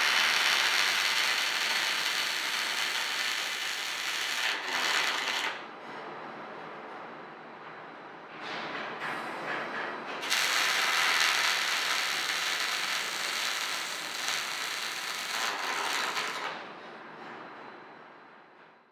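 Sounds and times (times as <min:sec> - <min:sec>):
welding arc hissing crackle: 0:00.0 - 0:05.6, 0:10.2 - 0:16.6.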